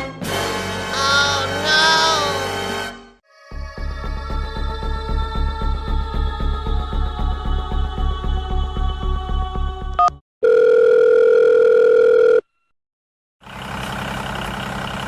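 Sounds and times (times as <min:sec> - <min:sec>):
engine-like running sound: 0:13.4 - 0:15.0.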